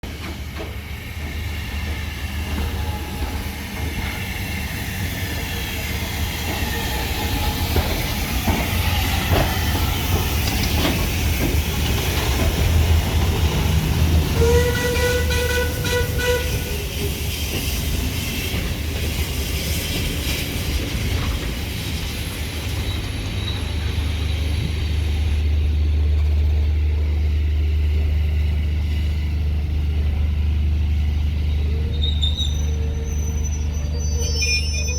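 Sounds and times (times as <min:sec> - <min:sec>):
steam locomotive rumbling: 0:00.0 - 0:34.9
steam whistle: 0:14.3 - 0:16.8.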